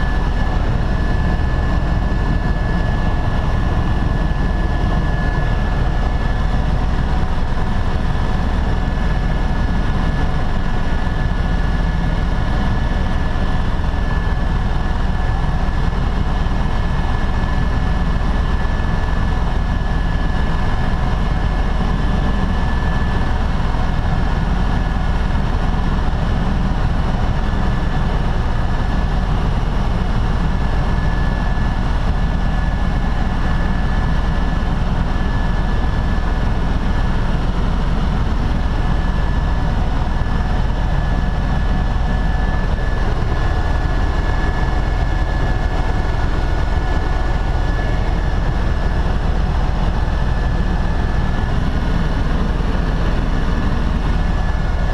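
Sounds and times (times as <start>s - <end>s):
helicopter engine and rotor drone: 0.0s - 54.9s.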